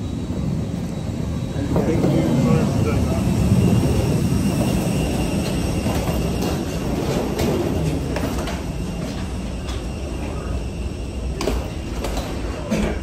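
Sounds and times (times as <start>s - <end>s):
people-mover train rumble: 0.0s - 13.0s.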